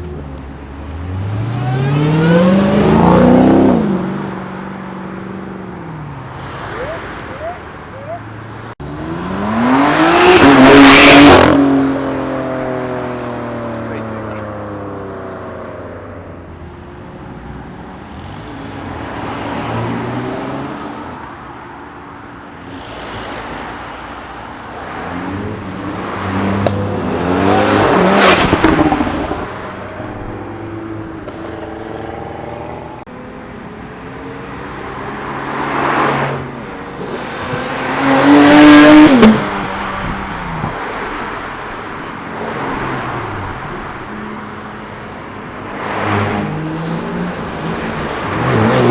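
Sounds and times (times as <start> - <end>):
cars accelerating past: 0.7 - 5.3, 6.2 - 13.7, 22.6 - 33.1, 34.6 - 44.4, 45.5 - 48.9.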